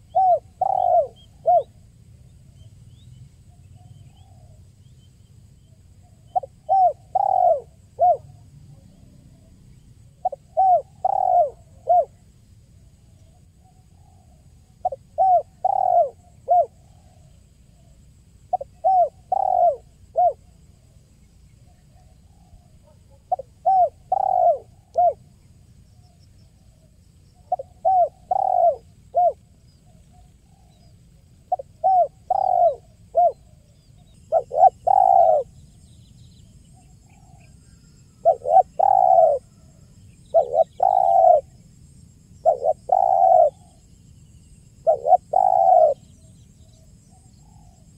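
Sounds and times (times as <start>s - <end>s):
dove cooing: 0.0s - 1.8s, 6.0s - 9.5s, 10.1s - 12.3s, 13.2s - 17.9s, 18.5s - 20.5s, 21.6s - 25.4s, 26.8s - 35.6s, 36.8s - 41.6s, 42.4s - 43.9s, 44.8s - 46.3s.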